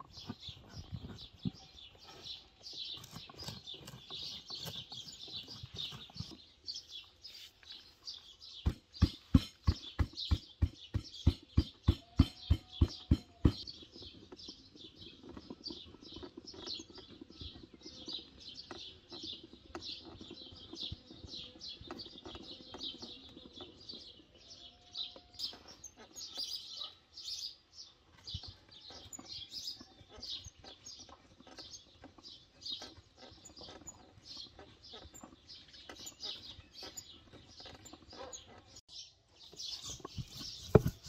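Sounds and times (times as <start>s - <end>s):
small birds chirping: 0.0s - 41.0s
loud sharp knocks: 8.6s - 13.6s.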